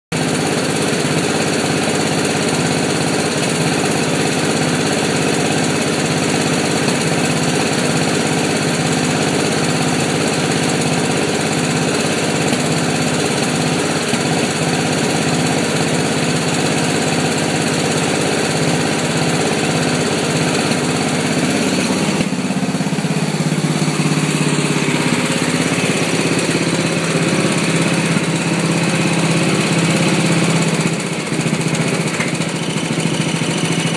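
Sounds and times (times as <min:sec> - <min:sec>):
lawn mower engine misfiring: 0:00.2 - 0:33.9.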